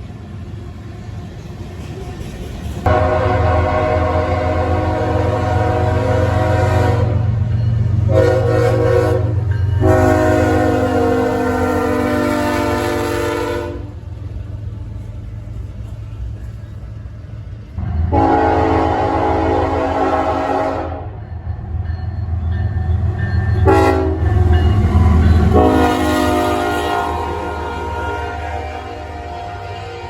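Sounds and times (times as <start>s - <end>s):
locomotive air horn blasts: 2.9s - 7.3s, 8.0s - 14.0s, 18.1s - 21.2s, 23.6s - 30.0s.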